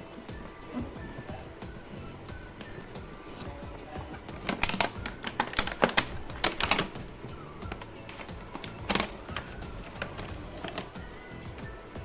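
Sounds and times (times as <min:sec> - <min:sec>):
background music: 0:00.0 - 0:12.0
plastic pieces clicking and tapping: 0:04.3 - 0:11.0.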